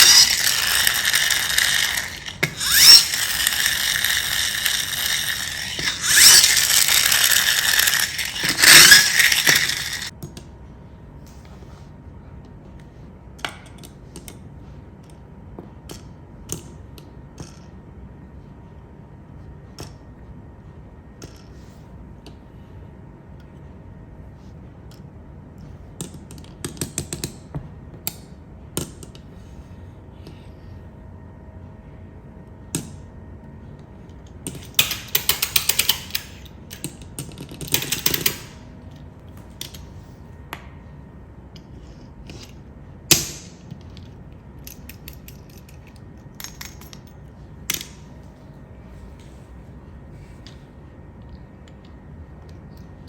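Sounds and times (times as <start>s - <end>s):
small hard objects rattling: 0.0s - 10.1s.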